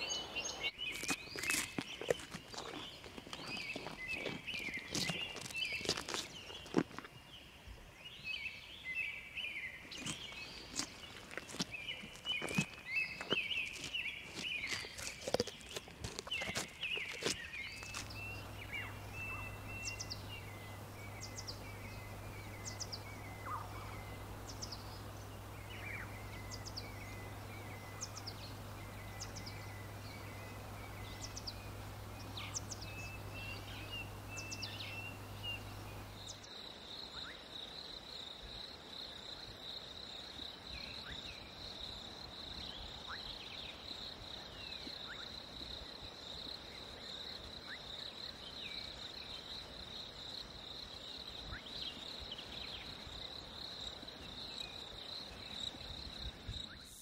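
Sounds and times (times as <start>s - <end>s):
birds chirping and trilling: 0.0s - 37.4s
low hum: 17.7s - 36.4s.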